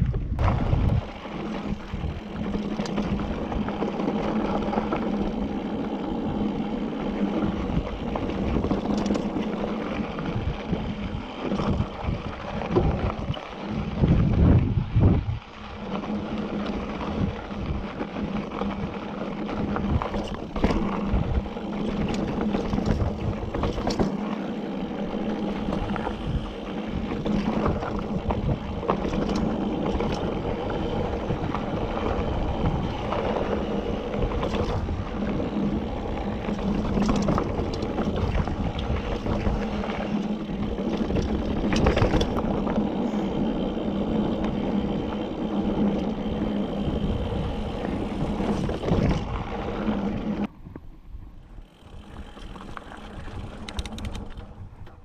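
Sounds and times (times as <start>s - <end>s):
wind on microphone: 0.0s - 3.9s, 7.4s - 16.1s, 25.1s - 55.0s
bike tyres rolling and rattling: 0.0s - 55.0s.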